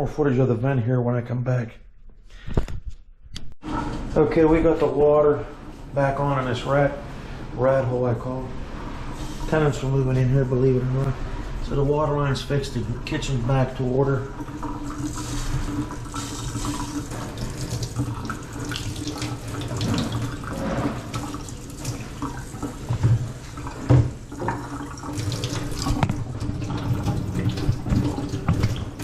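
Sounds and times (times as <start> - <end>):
faucet water splashing into sink: 12.5 - 29.0.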